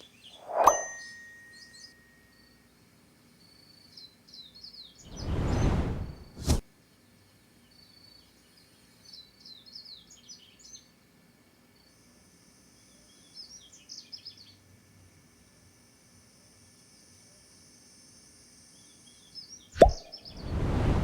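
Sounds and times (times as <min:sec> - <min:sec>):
small bird chirping: 0:00.0 - 0:02.6, 0:04.7 - 0:06.5.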